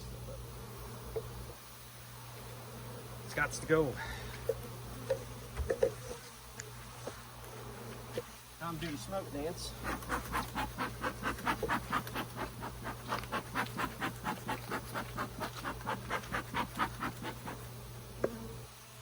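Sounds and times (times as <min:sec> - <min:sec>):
bellows puffing air: 0:09.7 - 0:17.6.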